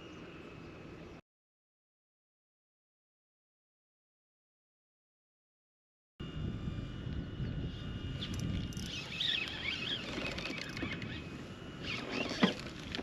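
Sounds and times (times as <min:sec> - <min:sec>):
wind: 0:00.0 - 0:01.2, 0:06.2 - 0:13.0.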